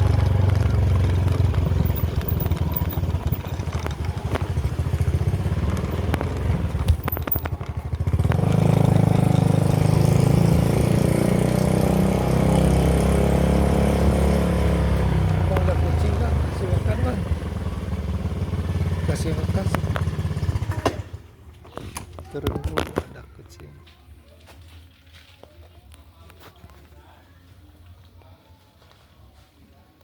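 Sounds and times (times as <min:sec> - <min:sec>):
motor low rumble: 0:00.0 - 0:09.0.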